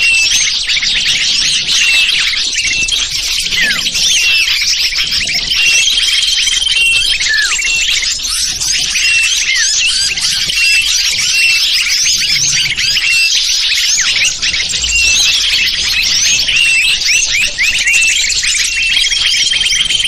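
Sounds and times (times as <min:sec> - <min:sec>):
high bird trill: 0:00.0 - 0:20.0
songbirds chirping in chorus: 0:00.0 - 0:20.0.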